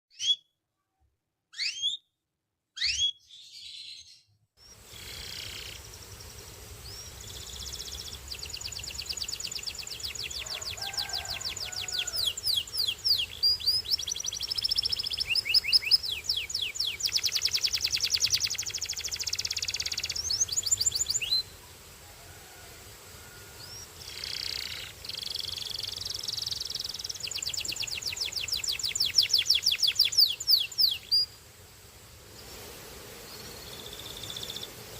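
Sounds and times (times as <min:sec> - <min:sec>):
canary singing trills: 0:00.1 - 0:00.5, 0:01.5 - 0:02.1, 0:02.8 - 0:05.8, 0:06.9 - 0:21.5, 0:23.6 - 0:31.4
background hiss: 0:04.6 - 0:34.9.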